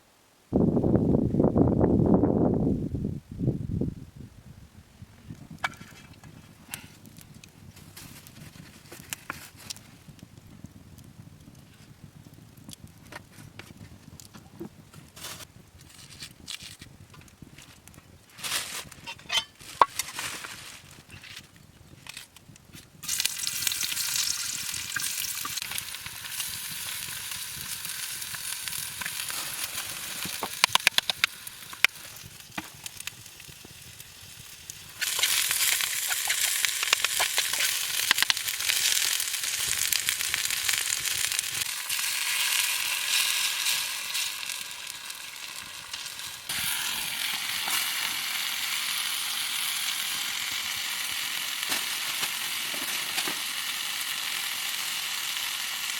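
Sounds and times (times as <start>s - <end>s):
food sizzling in hot fat: 18.9s - 21.3s, 23.0s - 55.9s
fat popping: 23.0s - 48.0s.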